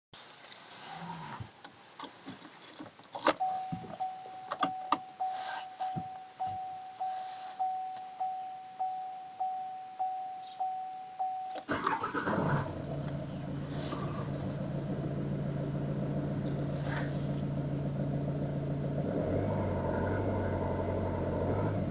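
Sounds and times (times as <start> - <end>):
car door warning chime beeping: 3.4 - 12.2
diesel engine starting and idling: 11.6 - 21.9.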